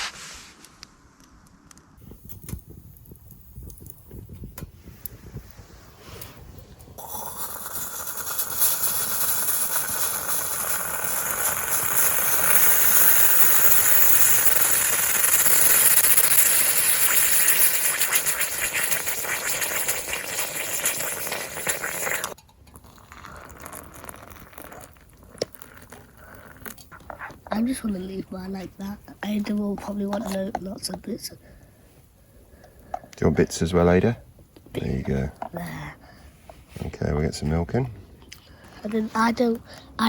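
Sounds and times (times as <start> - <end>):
steady hiss: 0.0 - 22.4, 32.7 - 36.0.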